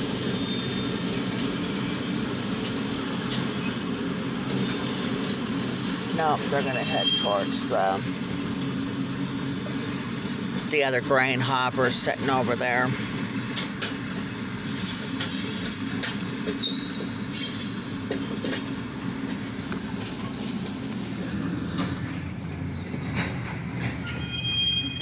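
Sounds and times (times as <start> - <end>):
freight train rumbling: 0.0 - 25.0
train cars clanking: 0.0 - 25.0
faint high squeal: 23.9 - 25.0.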